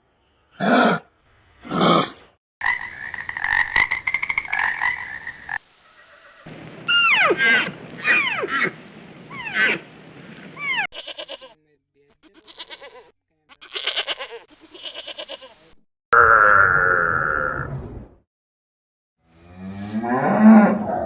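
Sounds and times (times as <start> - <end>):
animal calls: 1.6 - 10.9.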